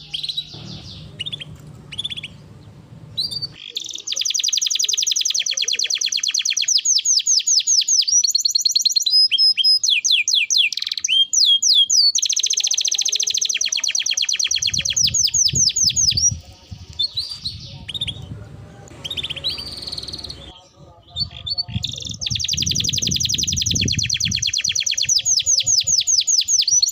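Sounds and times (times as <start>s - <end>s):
canary singing trills: 0.0s - 26.9s
low rumble: 0.4s - 3.6s, 17.4s - 20.5s.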